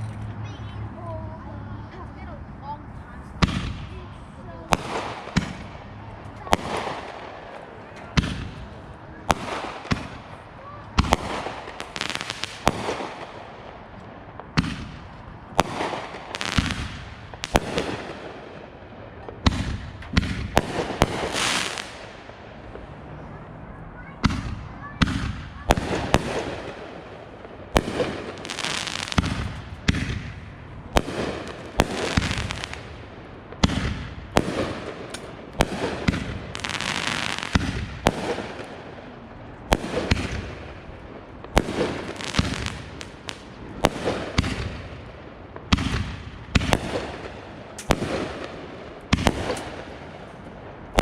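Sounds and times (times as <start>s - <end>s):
firework bangs: 3.4s - 23.0s, 24.1s - 51.0s
firework hiss: 19.5s - 22.1s, 27.7s - 30.4s, 31.0s - 38.7s.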